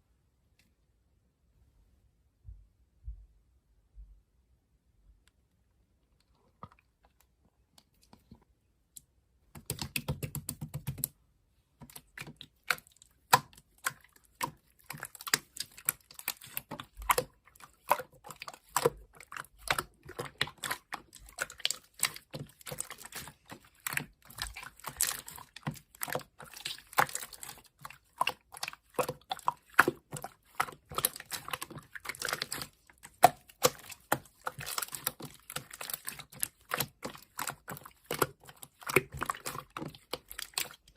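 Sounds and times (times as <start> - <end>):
rapid irregular clicking and tapping: 9.5 - 11.1.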